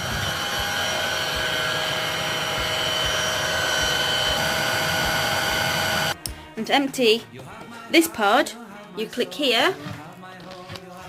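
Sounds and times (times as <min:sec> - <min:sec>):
vacuum cleaner motor whining: 0:00.0 - 0:06.2.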